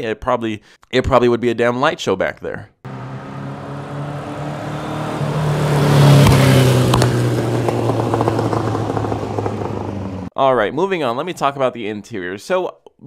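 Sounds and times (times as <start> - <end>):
car engine under throttle: 2.9 - 10.3
exhaust pops: 5.2 - 10.3.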